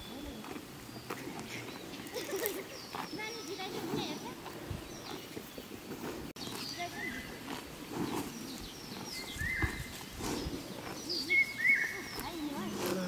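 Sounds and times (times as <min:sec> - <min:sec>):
high bird-like calls: 0:10.9 - 0:12.7.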